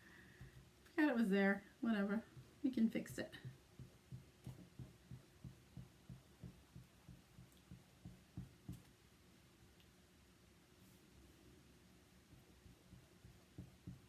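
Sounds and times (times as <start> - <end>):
soft low taps: 3.3 - 9.0, 12.3 - 14.0.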